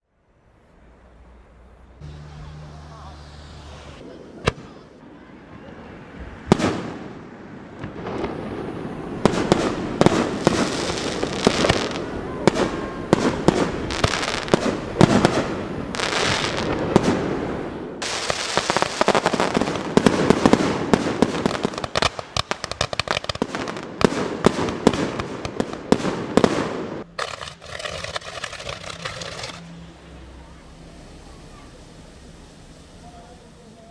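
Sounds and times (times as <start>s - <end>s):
fireworks crackling: 0.0s - 33.9s
firework shell bangs: 9.2s - 29.7s.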